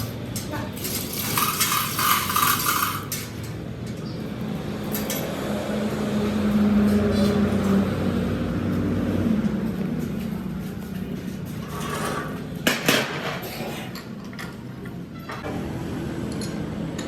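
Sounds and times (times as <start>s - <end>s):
metal clinking and scraping: 0.0s - 4.2s, 4.9s - 5.4s, 11.5s - 14.6s
metalworking machine humming: 0.0s - 7.8s.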